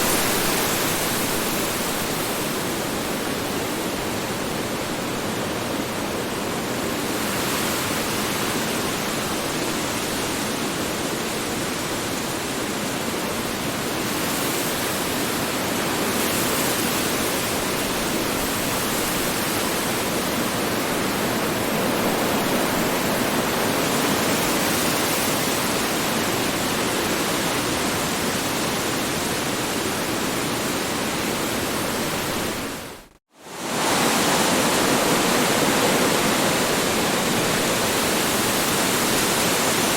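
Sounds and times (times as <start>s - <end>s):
strong wind rushing: 30.4s - 39.9s.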